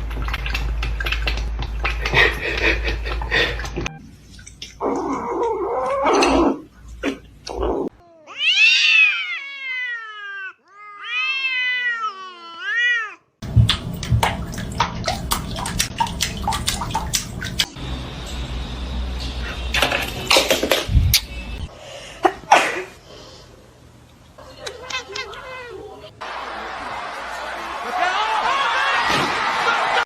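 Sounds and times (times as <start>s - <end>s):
cat yowling: 8.0s - 13.3s.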